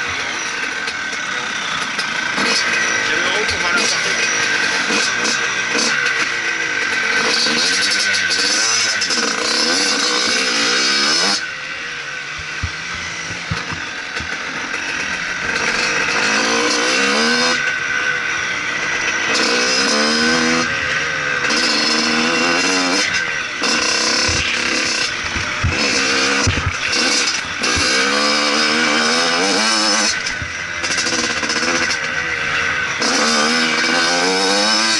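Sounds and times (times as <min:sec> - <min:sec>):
motocross bike engine revving: 0:00.0 - 0:34.9.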